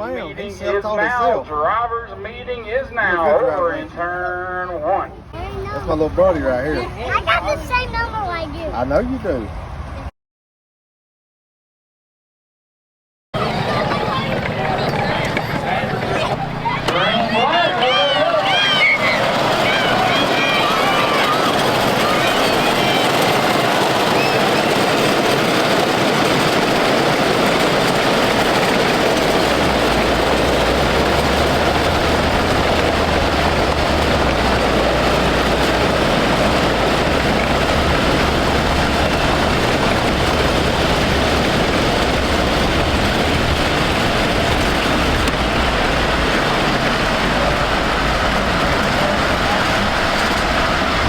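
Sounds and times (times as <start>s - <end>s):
small race car engines: 13.4s - 51.0s.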